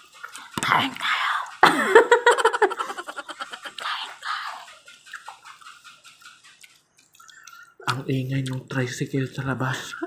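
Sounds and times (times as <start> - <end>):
woman giggling: 1.6 - 4.0.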